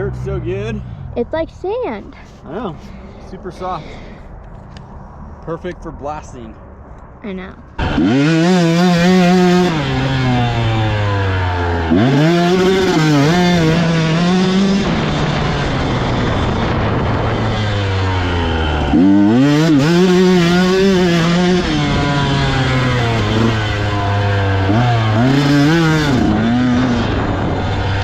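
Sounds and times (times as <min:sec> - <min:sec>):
dirt bike engine revving: 0:07.8 - 0:28.0.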